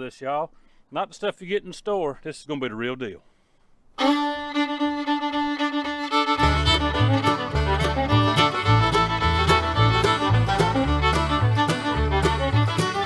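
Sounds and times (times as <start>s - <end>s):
bass line: 4.0s - 13.0s
fiddle: 4.0s - 13.0s
plucked rhythm: 4.0s - 13.0s.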